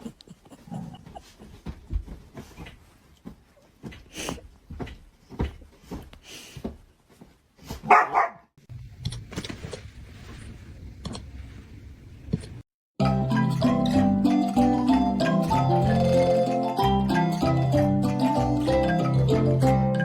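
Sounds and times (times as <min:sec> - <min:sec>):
dog barking: 0:07.8 - 0:08.5
music: 0:13.0 - 0:20.0.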